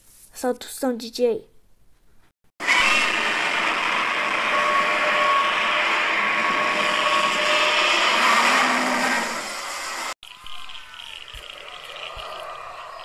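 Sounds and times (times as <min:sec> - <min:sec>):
harsh monster roar: 0:02.6 - 0:09.9.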